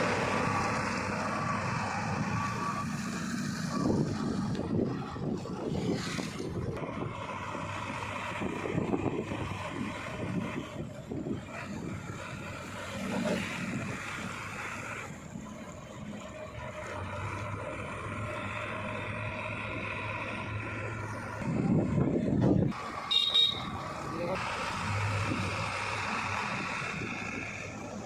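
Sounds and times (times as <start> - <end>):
diesel engine running: 0.0 - 28.0
wind rumbling on microphone: 3.2 - 14.5, 21.2 - 22.8.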